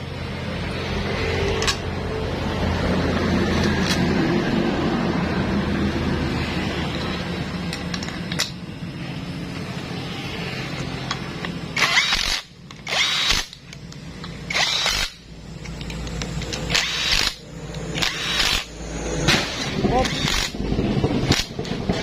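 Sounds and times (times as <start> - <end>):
steady low hum: 0.0 - 22.0
power drill bursts: 11.8 - 13.6, 14.5 - 15.2, 18.0 - 18.7, 19.4 - 20.6.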